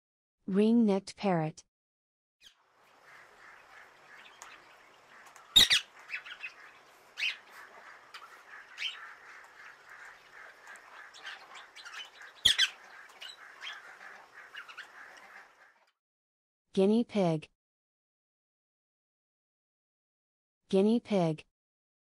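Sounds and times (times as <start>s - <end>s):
faint bird chirping: 2.4s - 15.8s
parakeet squawking: 3.0s - 15.7s.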